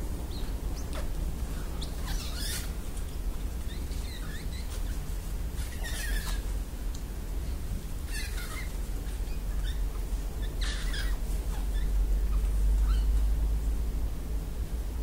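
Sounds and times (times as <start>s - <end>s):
steady low rumble: 0.0s - 15.0s
parrot squeaky calls: 1.6s - 2.7s, 3.7s - 4.9s, 5.7s - 6.4s, 8.1s - 13.2s.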